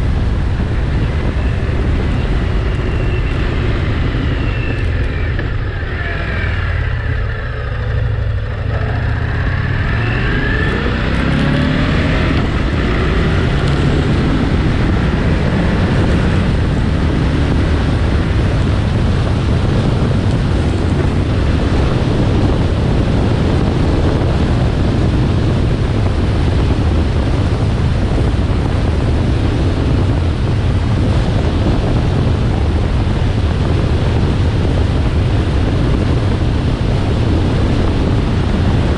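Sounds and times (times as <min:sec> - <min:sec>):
heavy wind noise: 0:00.0 - 0:38.9
motorcycle engine running: 0:00.0 - 0:38.9.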